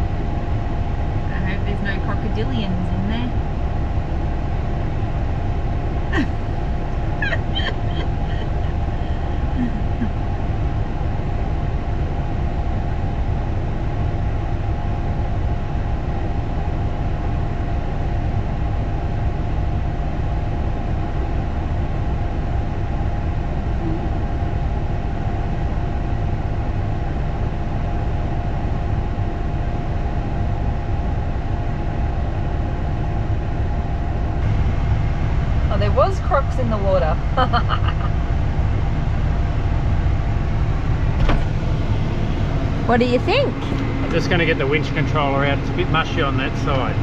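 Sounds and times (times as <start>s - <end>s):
faint steady whine: 0.0s - 47.0s
truck diesel engine rumbling: 1.2s - 3.6s, 4.7s - 11.2s, 34.3s - 47.0s.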